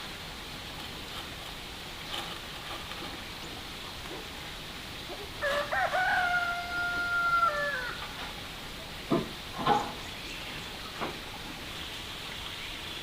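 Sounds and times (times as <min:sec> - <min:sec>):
rooster crowing: 0:05.4 - 0:08.1.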